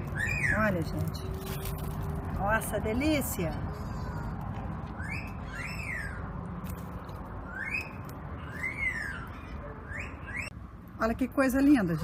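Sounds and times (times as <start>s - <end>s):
bird whistling calls: 5.0s - 6.2s, 7.4s - 10.5s.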